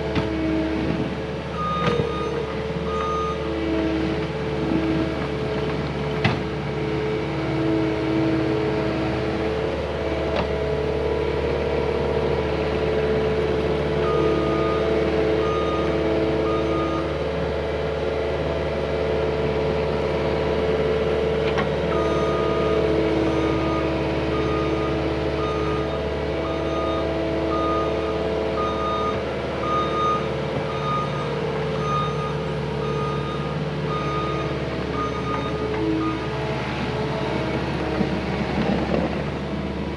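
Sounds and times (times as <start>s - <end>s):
diesel engine running: 0.0s - 39.9s
reversing alarm beeps: 1.6s - 3.5s, 14.0s - 17.2s, 21.9s - 36.3s.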